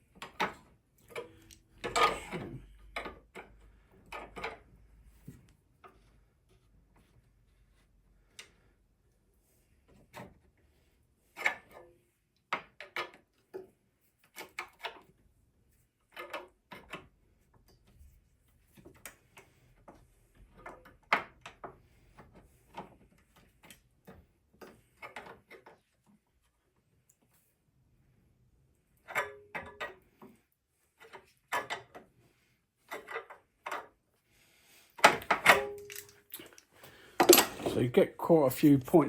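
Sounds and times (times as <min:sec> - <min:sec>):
metal parts and tools clanking: 0:35.0 - 0:36.6, 0:37.2 - 0:37.8.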